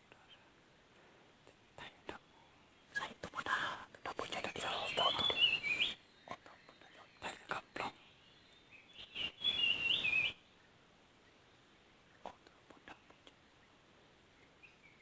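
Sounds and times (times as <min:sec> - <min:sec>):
small bird warbling: 0:04.2 - 0:08.0.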